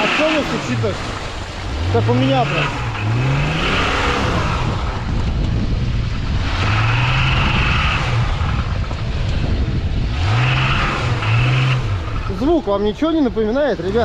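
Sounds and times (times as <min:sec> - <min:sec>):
engine revving: 0:00.0 - 0:14.0.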